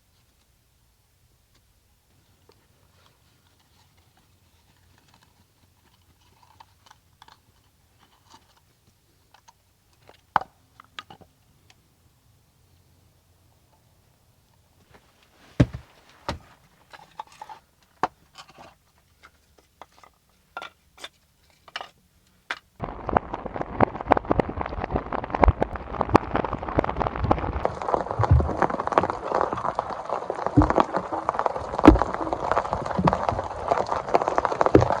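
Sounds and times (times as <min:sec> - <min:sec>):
sharp thumps: 0:15.6 - 0:16.6
heavy rain pattering: 0:22.8 - 0:35.0.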